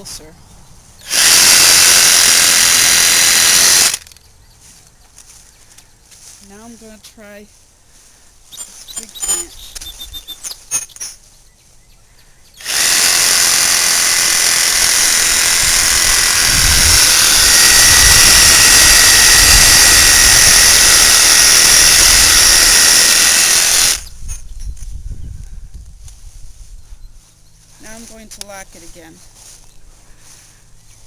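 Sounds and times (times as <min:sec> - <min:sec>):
reciprocating saw cutting branch: 0:01.0 - 0:04.2, 0:12.6 - 0:24.2.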